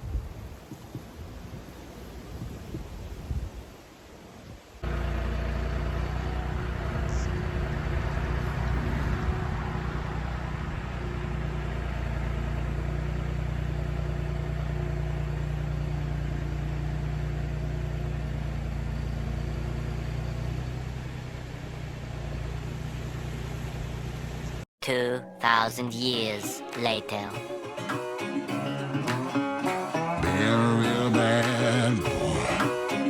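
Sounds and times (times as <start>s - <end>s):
vehicle engine idling: 4.8s - 24.6s.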